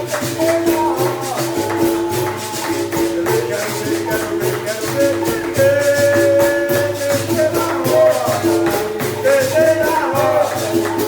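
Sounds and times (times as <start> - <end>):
person singing: 0.0 - 11.0
shaker rattling: 0.0 - 11.0.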